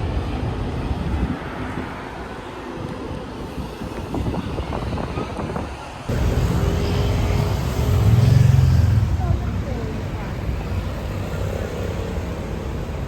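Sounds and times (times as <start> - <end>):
wind on microphone: 0.0 - 6.2
vehicles passing: 0.0 - 13.0
vehicle engine drone: 6.1 - 13.0.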